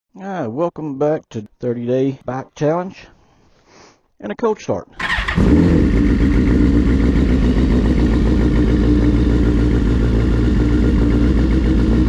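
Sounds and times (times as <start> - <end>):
motorcycle engine idling: 5.0 - 12.0.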